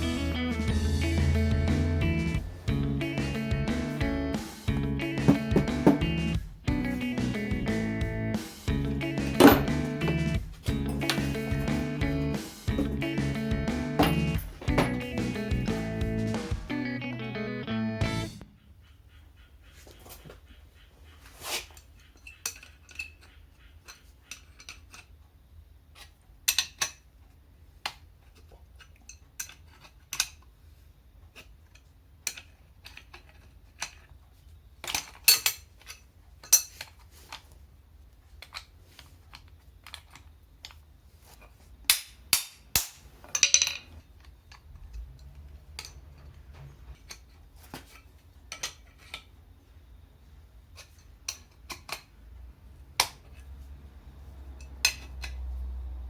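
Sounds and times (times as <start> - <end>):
metal tools clinking: 9.4 - 11.9, 12.7 - 13.0, 14.0 - 15.0, 34.8 - 36.9, 43.2 - 47.3.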